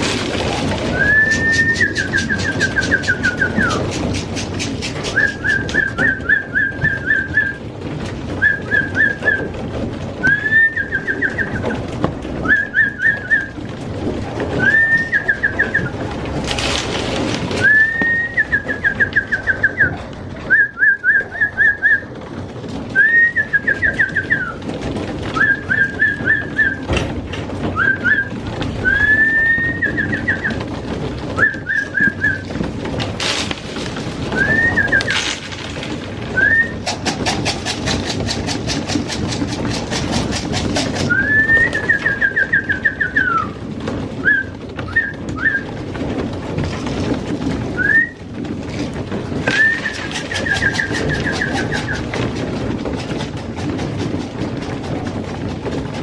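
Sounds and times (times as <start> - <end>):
fast even clicking: 0.0 - 7.6, 31.4 - 43.6, 49.4 - 55.4
pigeons cooing: 0.0 - 7.7, 8.3 - 27.0, 27.6 - 35.4, 36.2 - 43.7, 48.7 - 54.9.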